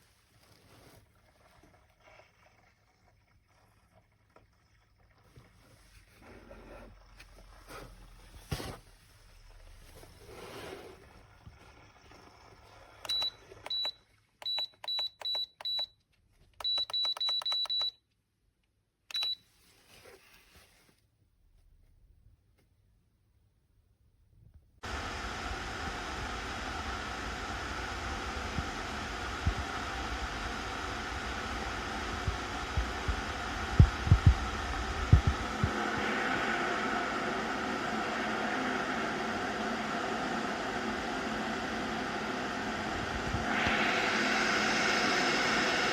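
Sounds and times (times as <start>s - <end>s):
electric kettle hissing: 6.4s - 13.8s, 24.8s - 45.9s
kettle base high beeps: 13.0s - 16.0s, 16.6s - 18.0s
low thumps in kettle: 28.5s - 29.9s, 30.6s - 36.4s.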